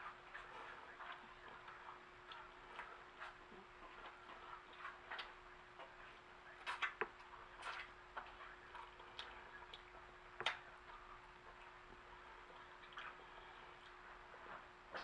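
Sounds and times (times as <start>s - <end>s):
faint steady hum: 0.0s - 15.0s
chewing and lip smacks: 0.1s - 15.0s.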